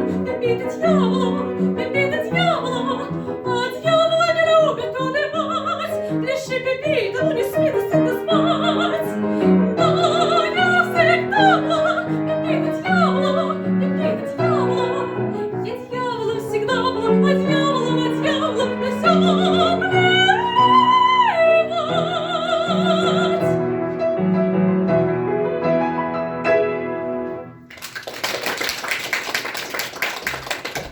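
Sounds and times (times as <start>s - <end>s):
soprano singing: 0.0s - 24.0s
piano accompaniment: 0.0s - 28.6s.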